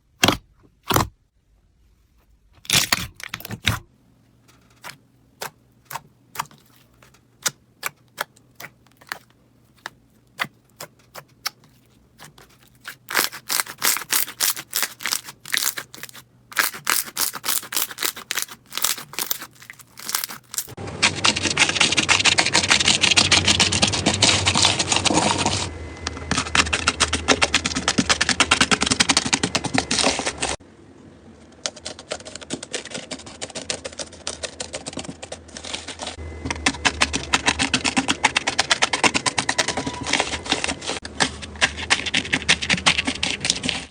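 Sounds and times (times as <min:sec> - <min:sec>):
slime clicking and popping: 0:12.4 - 0:20.7.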